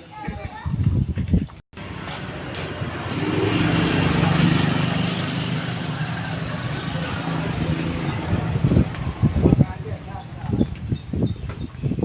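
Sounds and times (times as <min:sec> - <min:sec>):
engine humming: 0:01.8 - 0:10.9
steady rushing noise: 0:01.8 - 0:11.0.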